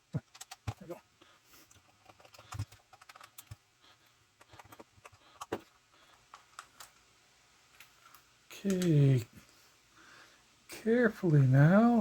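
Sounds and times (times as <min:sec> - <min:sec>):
plastic parts clicking: 0:00.1 - 0:00.9, 0:01.7 - 0:03.6, 0:04.4 - 0:07.1, 0:07.7 - 0:08.9.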